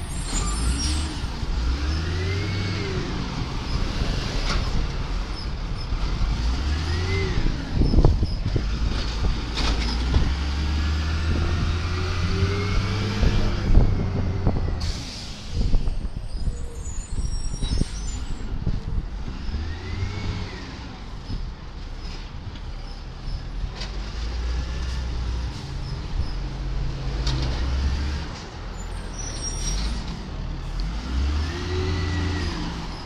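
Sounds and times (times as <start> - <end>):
garbage truck diesel engine revving: 5.9 - 15.7, 30.3 - 33.0.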